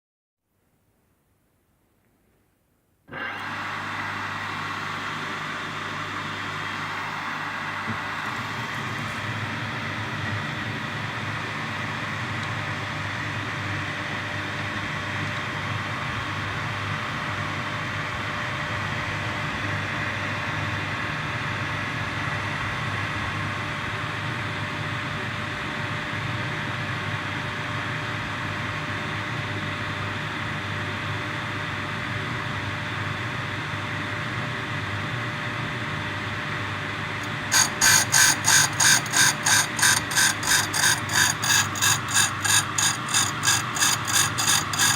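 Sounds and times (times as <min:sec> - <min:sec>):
grinding machine running: 0:03.2 - 0:09.6, 0:37.2 - 0:44.9.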